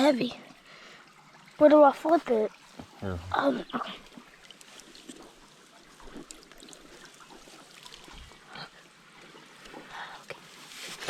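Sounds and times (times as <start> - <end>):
creek water trickling: 0.0 - 11.0.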